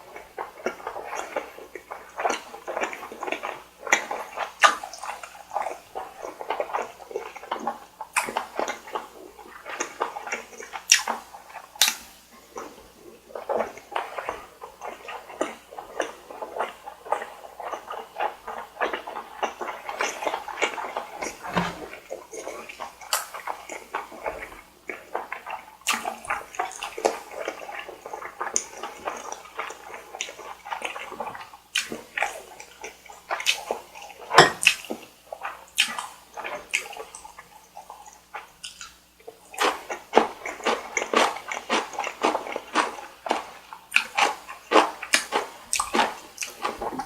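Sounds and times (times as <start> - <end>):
wet chewing and smacking: 0.0 - 47.0
slurping noodles: 12.5 - 31.5.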